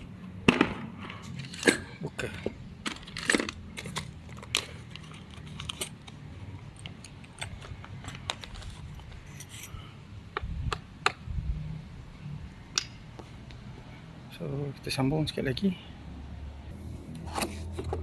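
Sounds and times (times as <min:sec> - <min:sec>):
plastic parts clattering: 0:00.5 - 0:06.2, 0:06.8 - 0:09.6.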